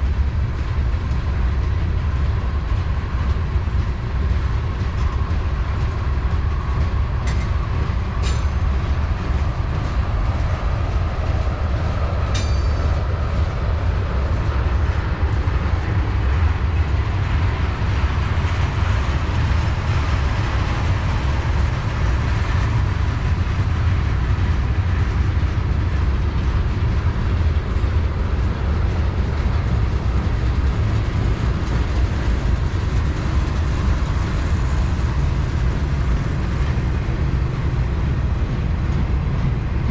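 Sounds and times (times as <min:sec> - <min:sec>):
freight train cars rumbling: 0:00.0 - 0:39.9
sharp metallic clanks: 0:08.2 - 0:08.6, 0:12.3 - 0:13.0.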